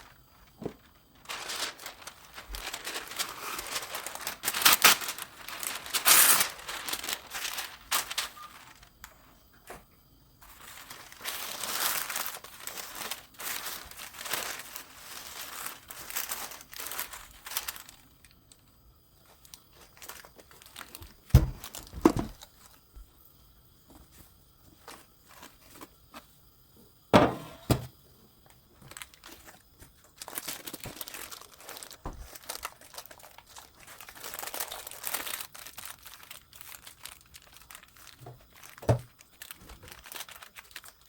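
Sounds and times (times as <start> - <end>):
paper crinkling and rustling: 0.0 - 9.8, 10.4 - 18.4, 19.2 - 22.8, 24.0 - 26.2, 28.8 - 41.0
dull thumps: 21.3 - 22.4, 27.2 - 27.9.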